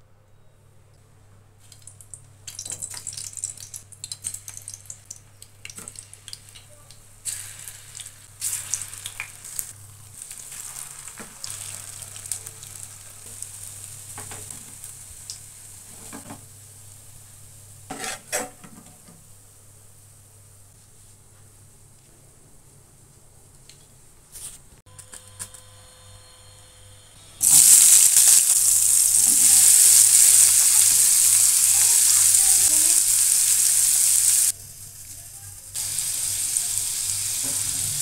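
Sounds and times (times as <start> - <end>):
koftas sizzling in hot oil: 1.6 - 18.1, 27.4 - 38.0
metal spoon scraping a pan: 17.9 - 18.6.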